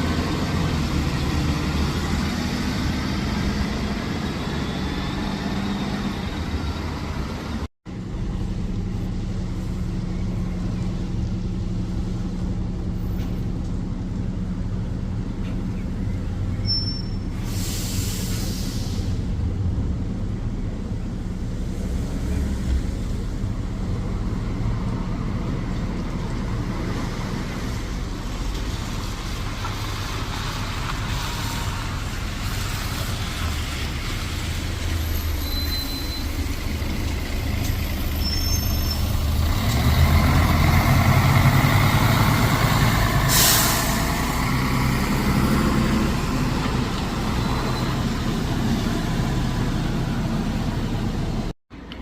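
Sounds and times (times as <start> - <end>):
bus diesel engine running: 0.0 - 52.0
air brake hiss: 17.1 - 19.3, 43.2 - 44.1.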